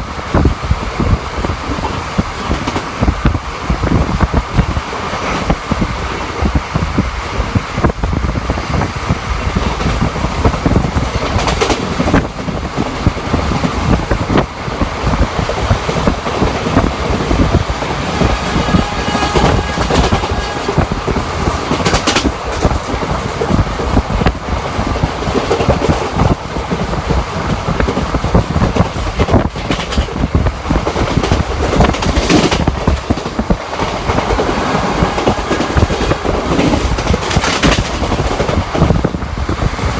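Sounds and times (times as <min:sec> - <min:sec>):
train coach rumbling and rattling: 0:00.0 - 0:39.9
wheels clicking over rail joints: 0:09.6 - 0:39.9.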